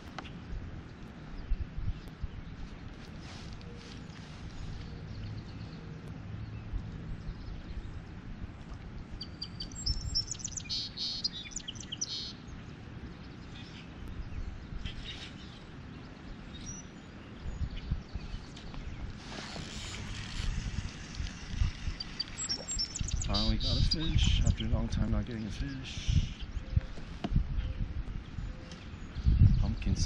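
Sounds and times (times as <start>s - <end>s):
wind rumble on microphone: 0.0s - 30.0s
songbird singing high notes: 9.2s - 12.4s, 21.7s - 24.8s.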